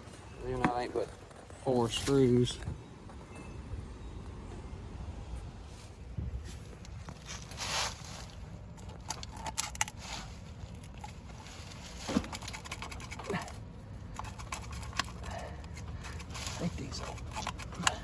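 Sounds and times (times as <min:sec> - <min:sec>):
low steady rumble: 0:00.0 - 0:18.0
tools and parts clicking: 0:08.8 - 0:10.0, 0:12.2 - 0:18.0.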